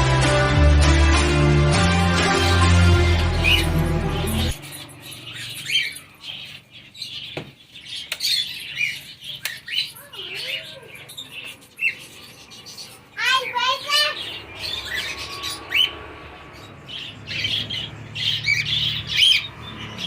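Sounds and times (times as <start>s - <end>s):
background music: 0.0s - 5.2s
birds squawking and chirping: 1.1s - 20.0s.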